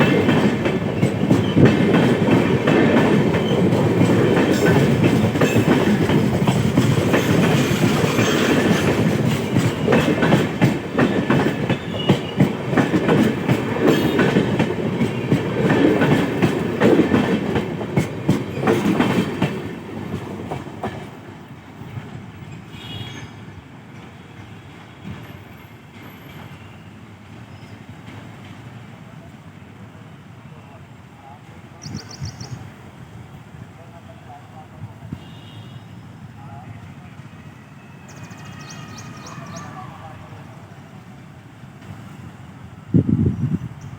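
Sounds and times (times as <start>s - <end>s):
train wheels clattering over joints: 0.0s - 21.2s
train rumble: 0.0s - 43.9s.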